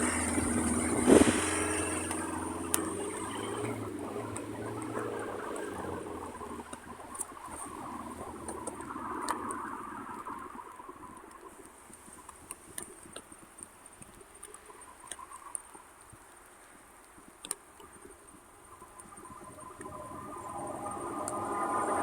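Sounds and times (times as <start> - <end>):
approaching train: 0.0 - 11.0, 18.7 - 22.0
light ticks: 1.5 - 22.0
faint high whine: 17.8 - 22.0.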